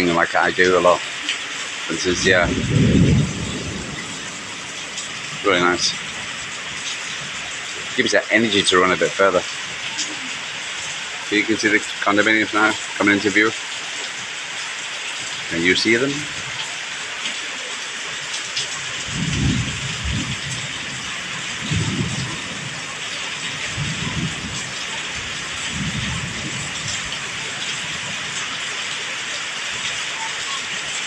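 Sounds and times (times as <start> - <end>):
rain pouring: 0.0 - 31.0
thunder rumbling: 1.9 - 10.0, 18.9 - 29.0.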